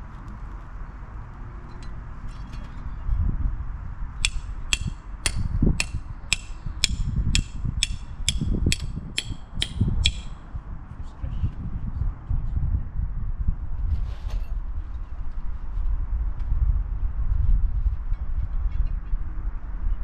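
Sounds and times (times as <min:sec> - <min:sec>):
mechanism clicking: 0:04.2 - 0:10.4.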